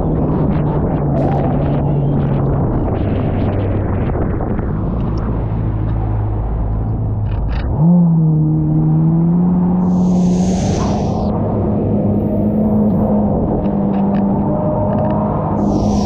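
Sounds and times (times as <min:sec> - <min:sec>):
rushing hiss: 0:09.9 - 0:11.3.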